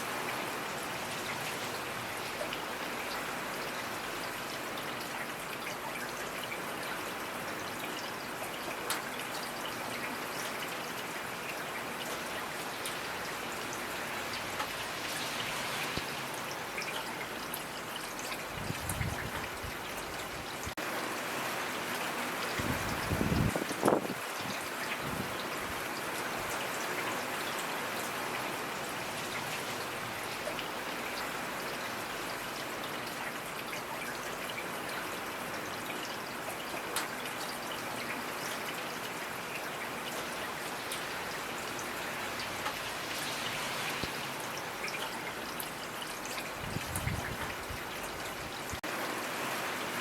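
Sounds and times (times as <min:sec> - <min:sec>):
steady rain hiss: 0:00.0 - 0:50.0
raindrops ticking on a surface: 0:00.1 - 0:49.2
raindrop ticks: 0:14.3 - 0:14.8, 0:36.8 - 0:37.2.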